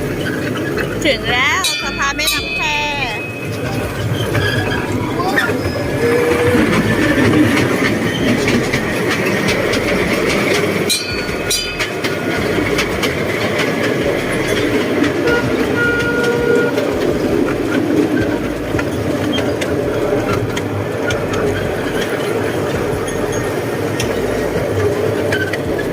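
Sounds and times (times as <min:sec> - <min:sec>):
train rumble: 0:00.0 - 0:25.9
wheels clicking on rails: 0:00.0 - 0:25.9.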